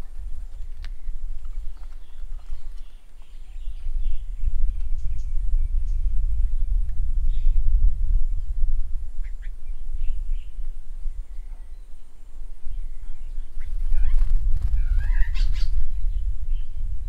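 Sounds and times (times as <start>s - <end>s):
birds chirping and warbling: 0.0s - 17.0s
low rumble: 0.0s - 17.0s.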